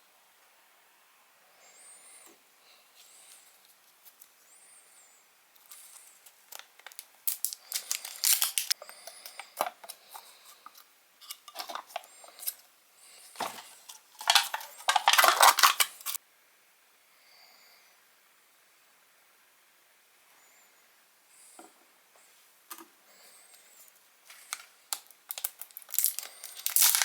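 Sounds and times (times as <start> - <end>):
foil crinkling and tearing: 5.7 - 10.2, 13.4 - 16.2, 24.3 - 27.0.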